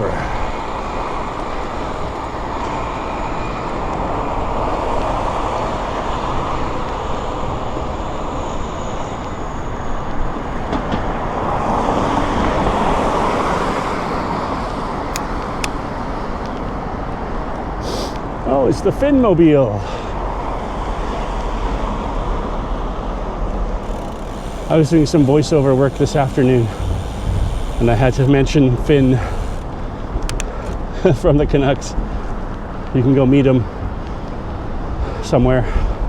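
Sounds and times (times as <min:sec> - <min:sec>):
traffic and road noise: 0:00.0 - 0:36.0
sharp clicks: 0:15.1 - 0:15.8.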